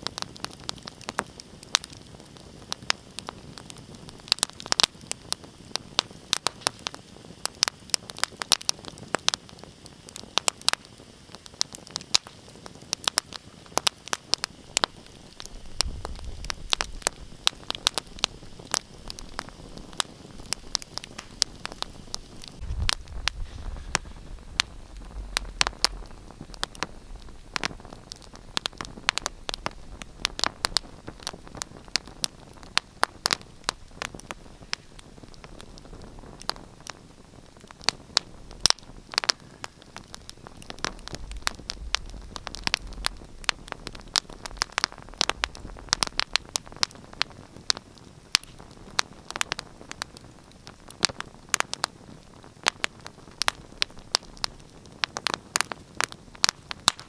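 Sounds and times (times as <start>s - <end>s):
low fire hiss: 0.0s - 57.0s
wood fire crackling: 0.0s - 57.0s
soft low rumble: 20.4s - 32.0s, 40.4s - 46.7s.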